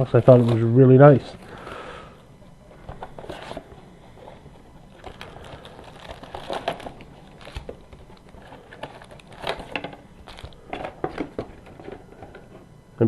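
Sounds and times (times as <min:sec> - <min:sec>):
packaging crinkling: 0:00.0 - 0:12.5.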